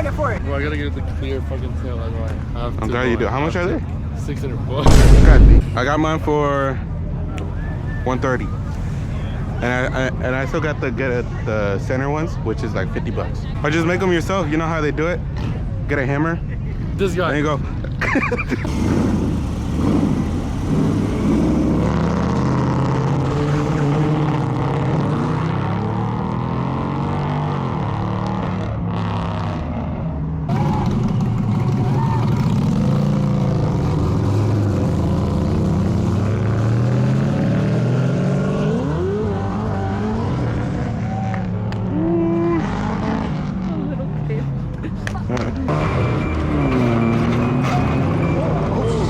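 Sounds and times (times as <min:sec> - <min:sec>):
car engines revving: 0:17.8 - 0:49.0.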